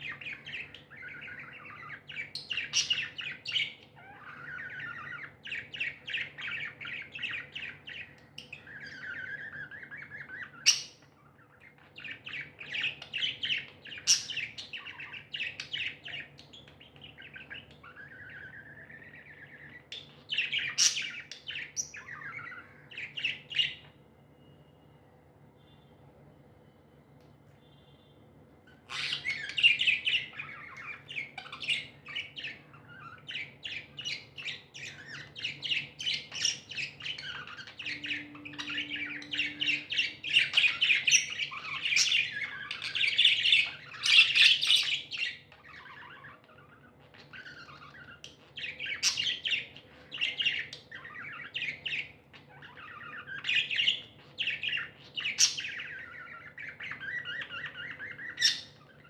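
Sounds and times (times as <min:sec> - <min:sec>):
budgies chirping: 0:00.0 - 0:24.6, 0:28.6 - 0:59.0.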